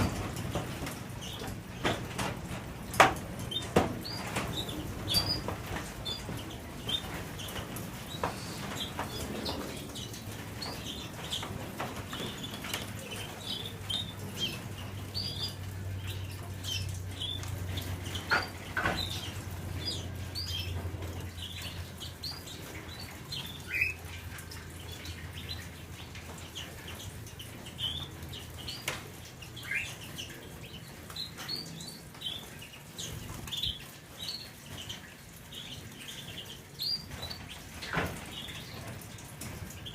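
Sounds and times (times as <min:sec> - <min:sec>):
canaries chirping: 0:00.0 - 0:39.9.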